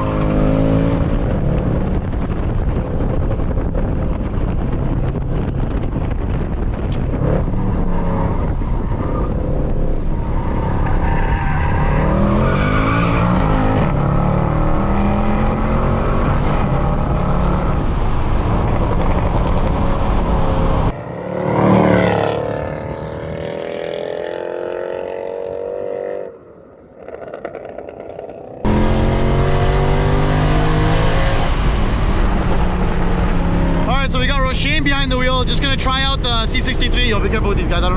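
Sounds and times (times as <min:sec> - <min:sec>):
car engine revving hard: 0:11.4 - 0:18.9, 0:20.0 - 0:26.0, 0:28.7 - 0:34.0.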